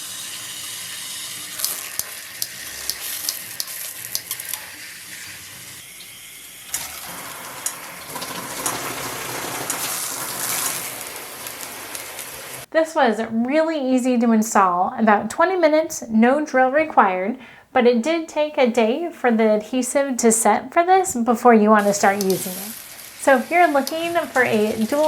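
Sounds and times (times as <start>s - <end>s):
shower head spraying water: 0.0s - 12.7s, 21.8s - 25.0s.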